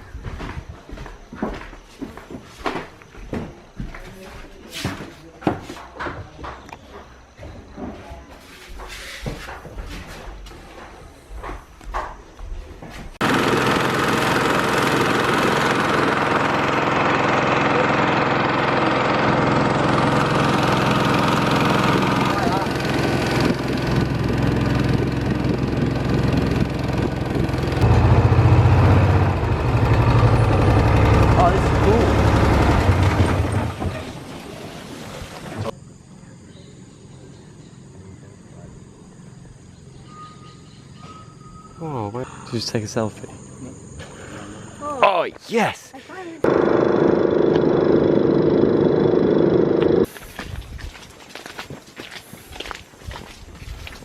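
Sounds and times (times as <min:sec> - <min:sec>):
small boat motor running: 0:13.2 - 0:36.0, 0:46.4 - 0:50.4
faint high insect-like tones: 0:35.7 - 0:46.4.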